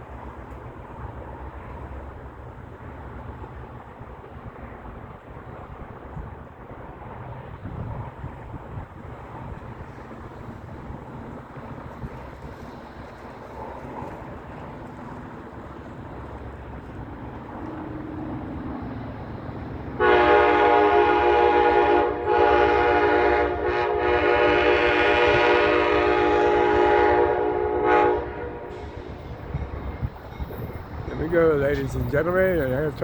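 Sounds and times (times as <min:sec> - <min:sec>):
low rumble of train: 0:00.0 - 0:33.0
multi-chime train air horn: 0:20.0 - 0:29.3.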